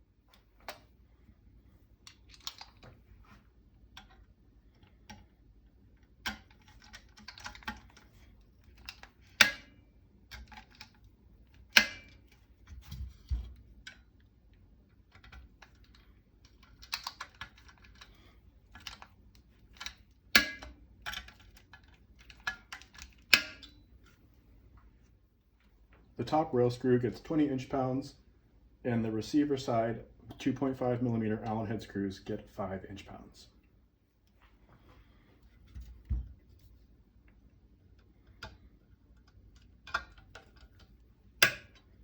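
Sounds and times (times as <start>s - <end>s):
metal tool clicking and rattling: 6.2s - 9.7s, 15.1s - 19.1s.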